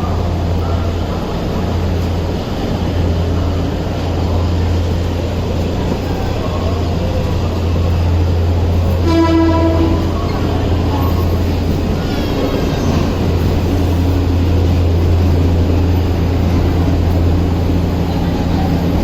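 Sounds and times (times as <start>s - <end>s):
moving train rumble: 0.0s - 19.0s
train horn blast: 8.9s - 10.6s.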